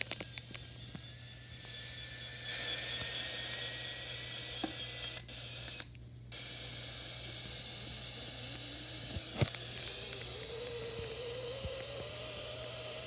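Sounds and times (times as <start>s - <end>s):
low hum: 0.0s - 13.0s
radio hiss with squeaks: 0.0s - 13.0s
thin steady whistle: 0.0s - 13.0s
clicks: 4.6s - 6.0s, 8.5s - 12.8s.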